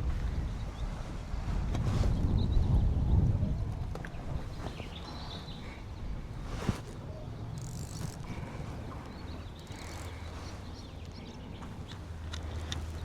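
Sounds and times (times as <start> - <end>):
wind on microphone: 0.0 - 13.0
water lapping against boat hull: 3.7 - 13.0.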